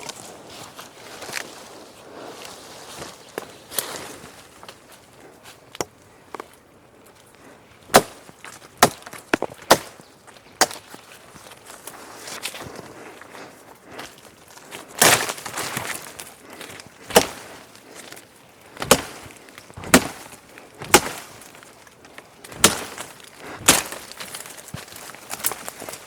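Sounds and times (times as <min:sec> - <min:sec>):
axe chopping wood: 0:07.9 - 0:10.0, 0:10.6 - 0:10.9, 0:15.0 - 0:16.0, 0:17.1 - 0:17.6, 0:18.8 - 0:21.6, 0:22.4 - 0:26.0.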